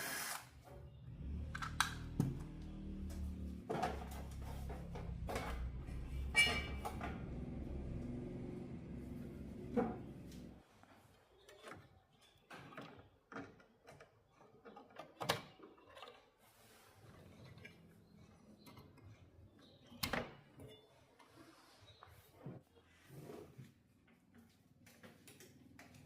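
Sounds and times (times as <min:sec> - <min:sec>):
tools and parts clicking: 0:01.5 - 0:02.2.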